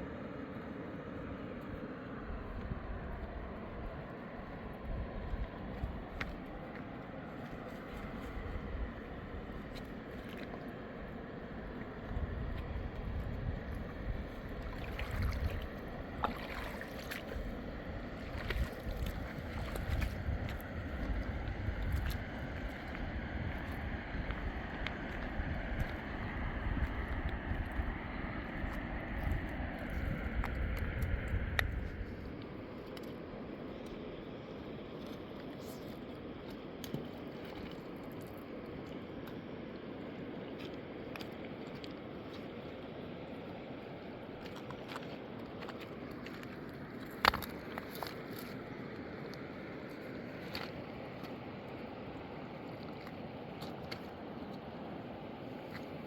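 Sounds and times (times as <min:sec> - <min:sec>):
rushing river water: 0:00.1 - 0:56.0
wind gusting on microphone: 0:12.0 - 0:16.3, 0:17.3 - 0:32.4
river water rushing: 0:14.0 - 0:26.6.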